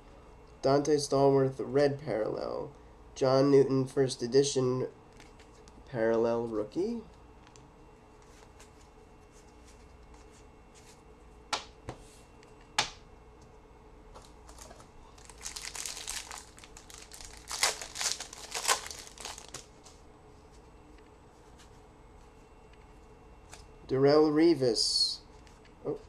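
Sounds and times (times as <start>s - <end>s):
wrapper crinkling and tearing: 14.2s - 19.9s.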